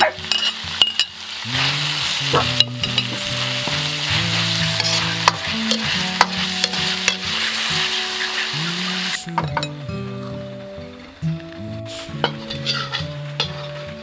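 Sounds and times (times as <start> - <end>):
food sizzling in a hot pan: 0.0 - 14.0
spatula scraping a pan: 4.3 - 8.5, 12.0 - 13.9.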